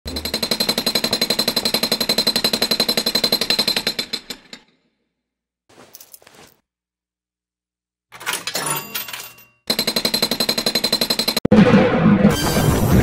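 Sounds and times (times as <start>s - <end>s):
cartoon jackhammer pounding: 0.0s - 4.8s, 9.6s - 11.5s.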